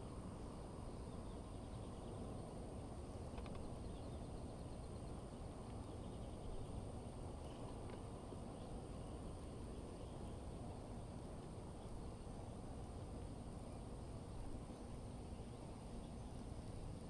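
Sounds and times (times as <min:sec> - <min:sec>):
low outdoor background noise: 0:00.0 - 0:17.0
faint bird chirps: 0:00.8 - 0:02.5, 0:03.4 - 0:07.7.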